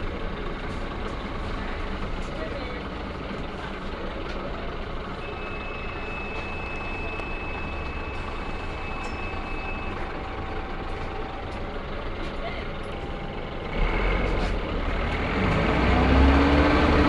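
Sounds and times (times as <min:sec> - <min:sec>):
bus engine and road noise: 0:00.0 - 0:17.0
high electronic beep: 0:05.2 - 0:10.0.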